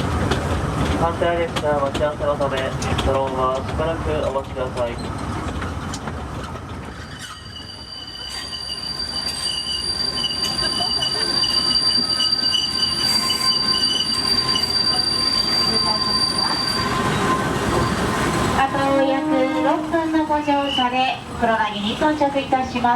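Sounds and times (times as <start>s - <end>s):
train running rumble: 0.0s - 8.4s
train wheels squealing on rails: 2.6s - 21.3s.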